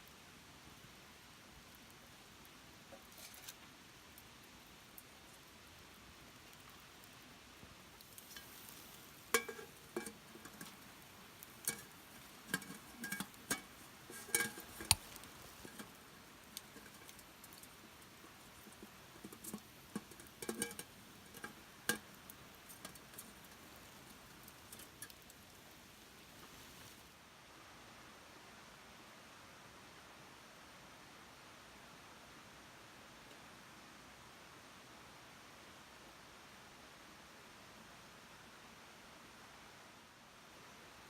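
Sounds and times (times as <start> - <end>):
faint steady background: 0.0 - 41.0
clinks and knocks: 9.4 - 10.8, 11.6 - 15.9.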